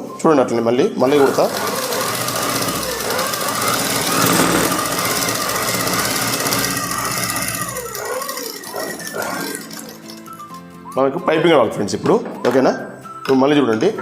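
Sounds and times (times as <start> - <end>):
sewing machine running fast: 1.0 - 10.4.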